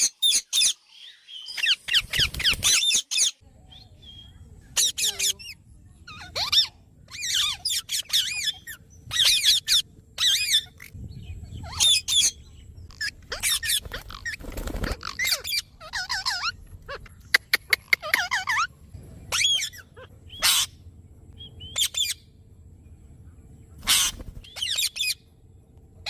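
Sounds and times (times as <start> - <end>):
parrot squawks and chirps: 4.8 - 11.0, 11.6 - 18.7, 19.3 - 20.8, 21.7 - 22.2, 23.8 - 25.2.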